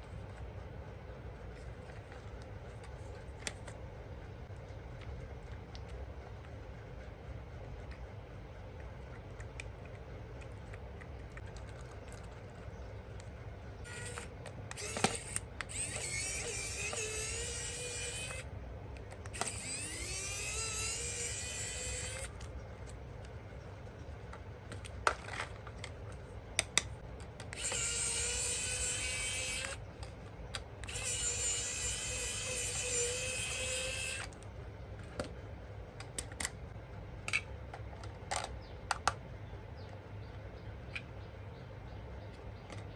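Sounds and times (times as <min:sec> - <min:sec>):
toy electric motor whirring: 0:13.8 - 0:18.5, 0:19.1 - 0:22.6, 0:26.6 - 0:34.4
plastic clicks: 0:13.9 - 0:17.0, 0:24.3 - 0:31.1, 0:36.0 - 0:36.6, 0:37.2 - 0:39.2.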